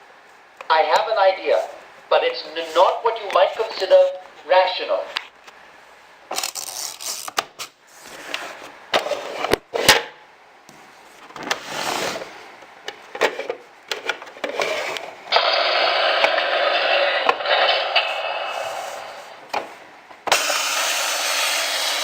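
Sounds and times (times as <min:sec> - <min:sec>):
hiss: 0:15.3 - 0:19.4, 0:20.3 - 0:22.0.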